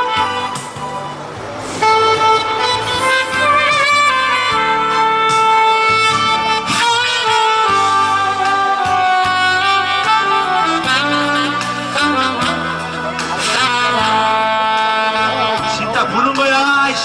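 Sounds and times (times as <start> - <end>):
wind instrument melody: 0.0 - 16.0.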